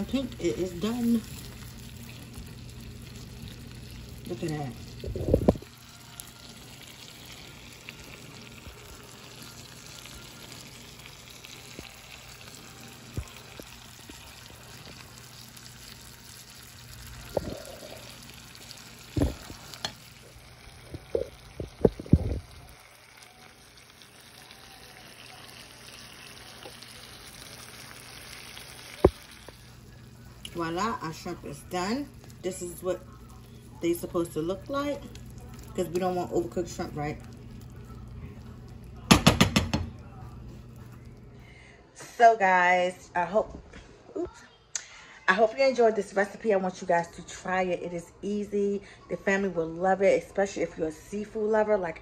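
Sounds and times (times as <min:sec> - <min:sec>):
shrimp sizzling in a skillet: 0:00.0 - 0:39.7
stirring knocks: 0:39.1 - 0:40.0.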